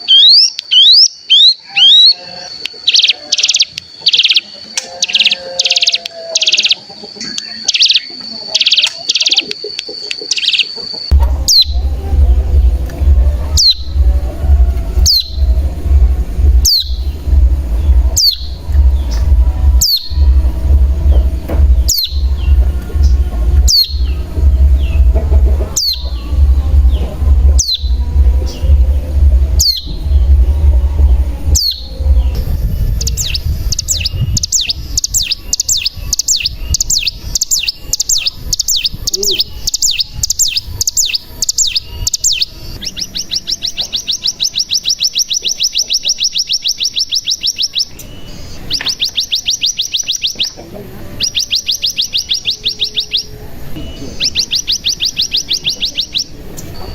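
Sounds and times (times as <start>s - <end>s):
bird calls sweeping downward: 0.0s - 50.6s
bird trilling: 0.0s - 56.9s
low rumble: 11.1s - 43.8s.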